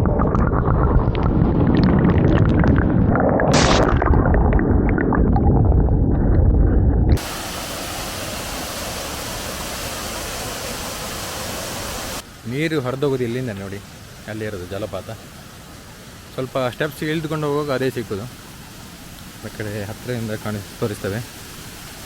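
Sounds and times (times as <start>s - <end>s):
waterfall rushing: 7.2s - 22.0s.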